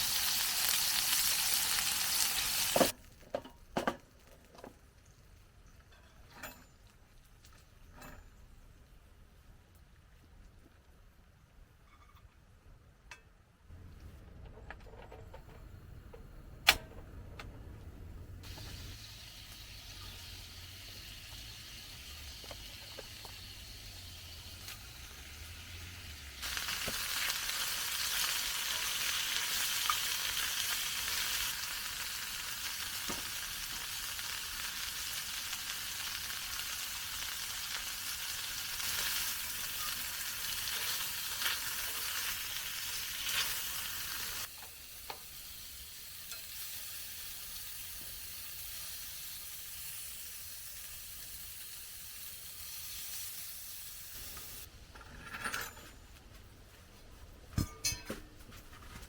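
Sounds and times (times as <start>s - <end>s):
food sizzling in a pan: 0.0s - 3.0s, 18.4s - 54.7s.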